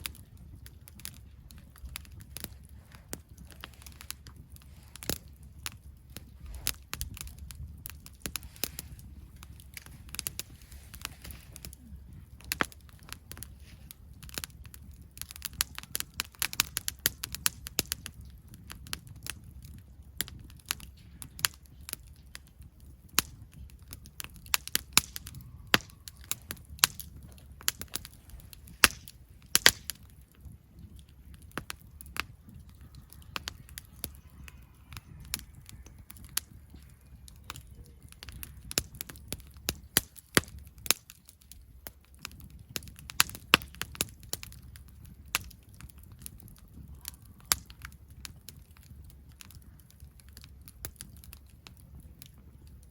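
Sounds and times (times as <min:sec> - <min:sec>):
campfire crackling and popping: 0:00.0 - 0:52.9.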